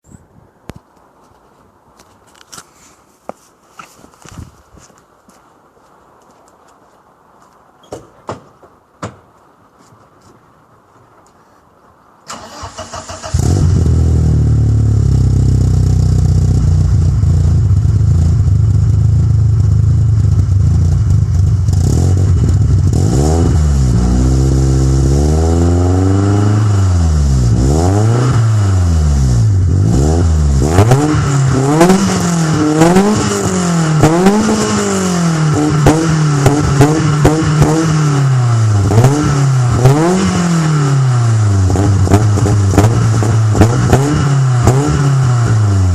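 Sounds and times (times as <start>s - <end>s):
car engine starting and idling: 12.2s - 45.9s
engine revving with crackles: 12.3s - 17.0s, 20.6s - 45.9s.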